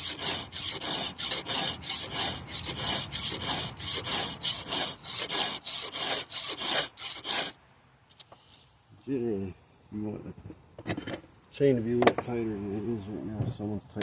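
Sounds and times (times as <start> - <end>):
file rasping on chainsaw chain: 0.0 - 7.6.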